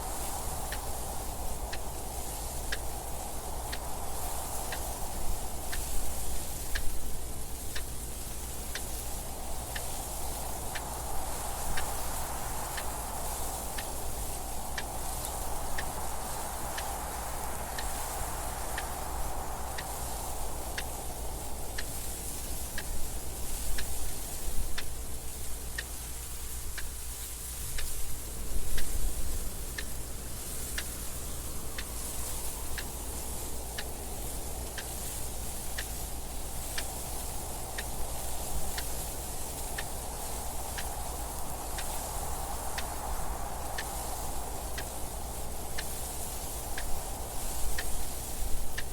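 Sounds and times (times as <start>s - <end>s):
wind noise: 0.0s - 48.9s
clock ticking: 31.8s - 40.0s.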